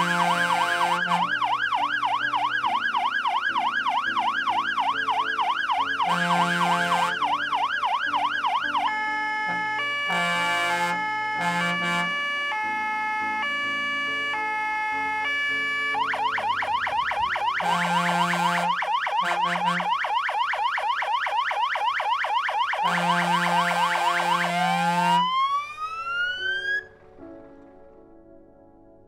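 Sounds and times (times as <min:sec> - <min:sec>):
deep air horn blasts: 0:00.0 - 0:01.3, 0:06.0 - 0:07.3, 0:09.8 - 0:12.6, 0:17.2 - 0:19.9, 0:22.8 - 0:25.3
fire engine electronic siren: 0:00.0 - 0:26.9.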